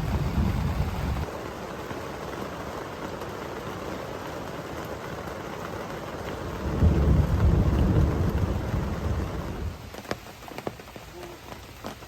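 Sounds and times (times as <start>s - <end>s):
thunder rumbling: 0.0s - 1.3s, 6.3s - 9.8s
rain falling: 0.0s - 12.0s
raindrops tapping: 0.0s - 12.0s.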